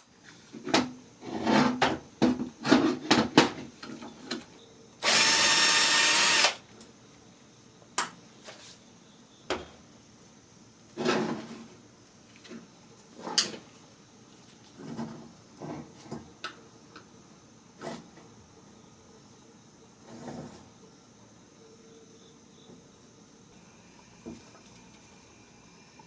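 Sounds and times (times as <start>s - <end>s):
power drill running: 5.0s - 6.6s.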